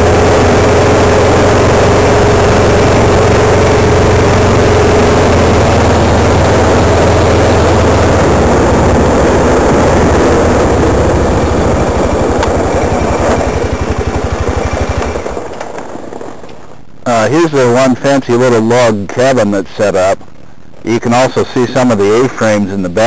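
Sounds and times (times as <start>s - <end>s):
atv engine running: 0.0s - 17.5s.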